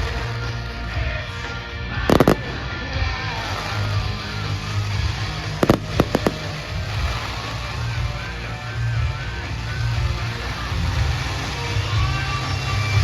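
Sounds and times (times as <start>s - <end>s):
music playing: 0.0s - 13.0s
fireworks bangs: 2.1s - 12.2s.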